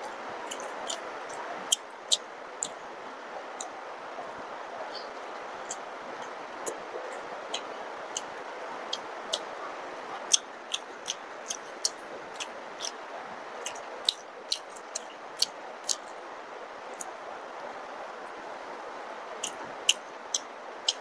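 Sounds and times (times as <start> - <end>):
heavy rain hiss: 0.0 - 21.0
chewing with wet mouth clicks: 0.5 - 2.8, 7.5 - 8.3, 8.9 - 9.5, 10.3 - 13.0, 13.6 - 16.1, 19.4 - 21.0.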